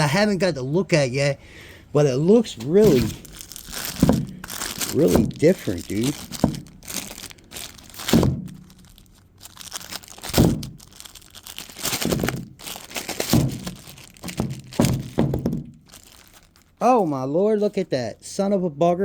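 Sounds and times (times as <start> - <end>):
packaging crinkling and tearing: 2.4 - 17.9
knocks and thunks: 2.8 - 8.7, 10.2 - 10.9, 11.8 - 15.9.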